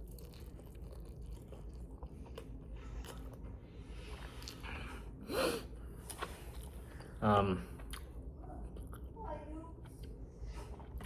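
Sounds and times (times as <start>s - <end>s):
person chewing: 0.0s - 5.2s, 5.9s - 9.1s
low steady hum: 0.0s - 11.0s.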